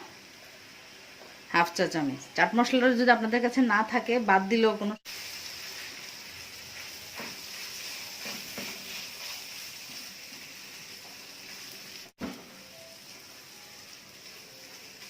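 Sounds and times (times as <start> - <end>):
meat sizzling in a pan: 5.0 - 15.0.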